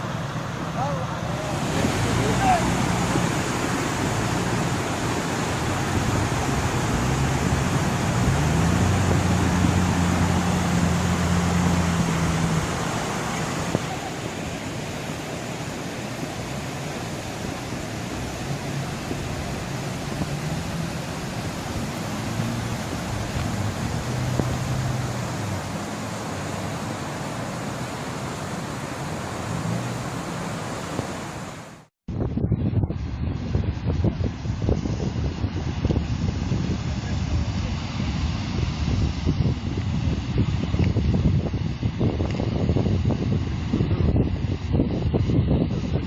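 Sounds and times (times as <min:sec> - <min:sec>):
rushing creek water: 0:00.0 - 0:31.9
low engine hum: 0:00.0 - 0:44.3.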